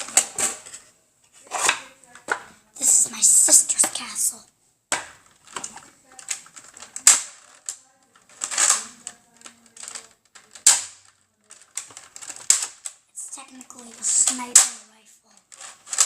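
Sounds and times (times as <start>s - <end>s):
plastic parts clicking and rattling: 0.0s - 2.5s, 4.9s - 16.0s.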